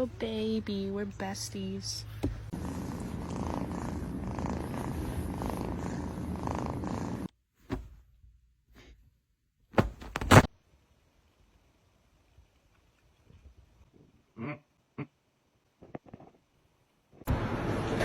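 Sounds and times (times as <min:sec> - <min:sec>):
cat purring: 0:02.5 - 0:07.3
short thumps: 0:07.6 - 0:08.1, 0:09.7 - 0:10.5.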